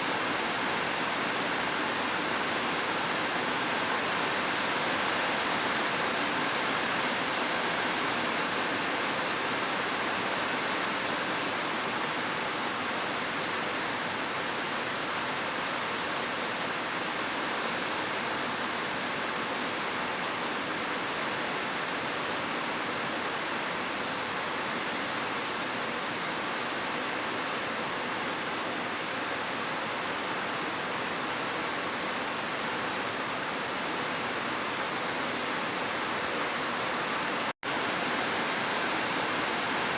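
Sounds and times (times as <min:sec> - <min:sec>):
heavy rain hiss: 0:28.4 - 0:39.9.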